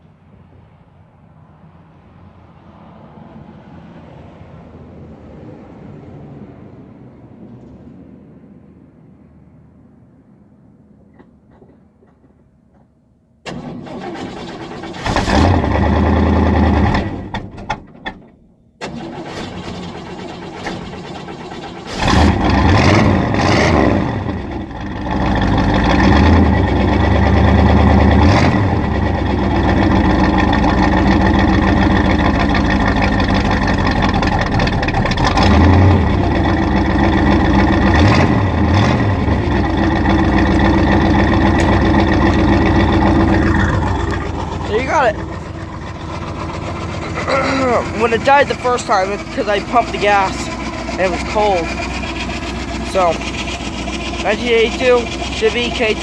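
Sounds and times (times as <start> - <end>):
starter cranking: 13.5 - 56.0
pickup engine revving and idling: 14.1 - 17.7, 18.9 - 56.0.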